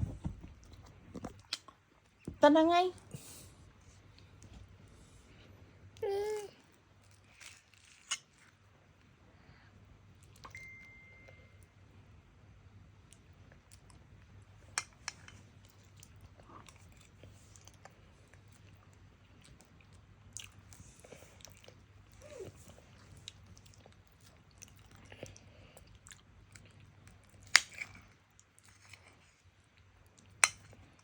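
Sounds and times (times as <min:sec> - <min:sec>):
person chewing: 0:07.0 - 0:08.6, 0:14.9 - 0:29.3.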